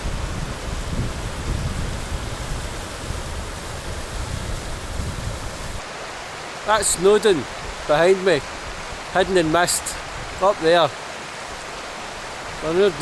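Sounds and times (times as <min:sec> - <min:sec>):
wind buffeting microphone: 0:00.0 - 0:05.9
steady rushing hiss: 0:00.0 - 0:13.0.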